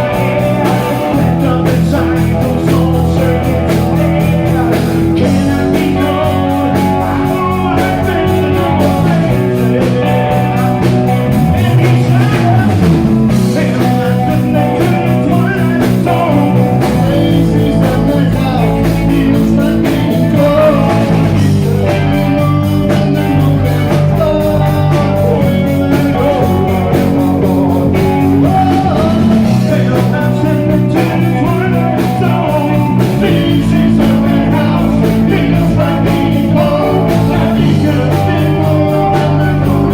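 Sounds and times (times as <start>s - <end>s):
person singing: 0.0s - 39.9s
rock band playing live: 0.0s - 39.9s.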